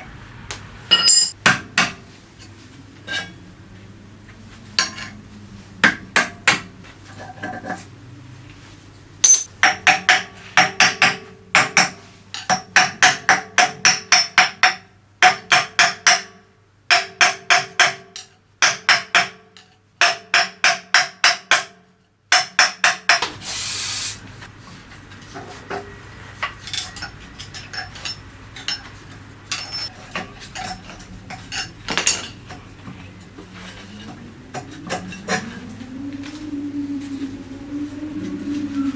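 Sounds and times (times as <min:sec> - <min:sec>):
metal parts clinking and rubbing: 0:00.9 - 0:01.4, 0:09.2 - 0:09.5
hammer striking metal: 0:00.9 - 0:01.6, 0:09.2 - 0:09.8
short hiss: 0:23.4 - 0:24.2.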